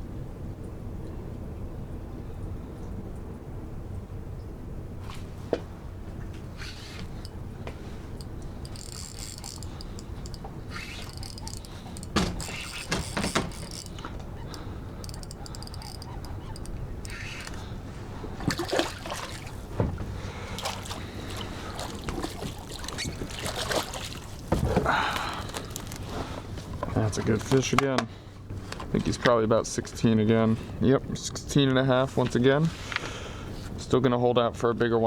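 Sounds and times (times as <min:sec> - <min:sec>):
water splashing and trickling: 0:05.2 - 0:26.0
gear knocking and clattering: 0:08.2 - 0:17.6.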